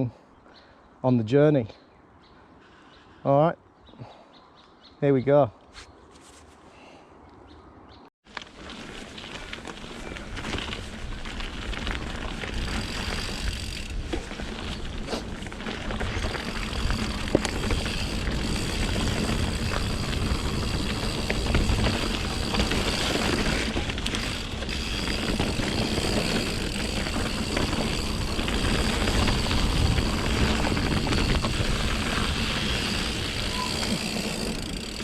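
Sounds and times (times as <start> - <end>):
bike knocking and rattling: 8.3 - 35.0
bike tyres rumbling: 8.3 - 35.0.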